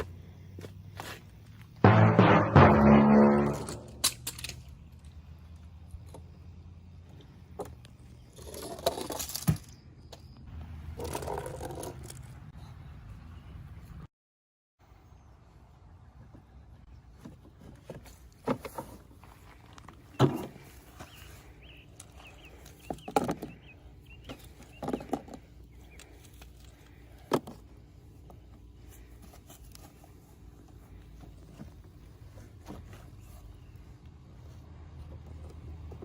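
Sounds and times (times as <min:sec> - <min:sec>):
knocks and scrapes: 0:01.8 - 0:04.5.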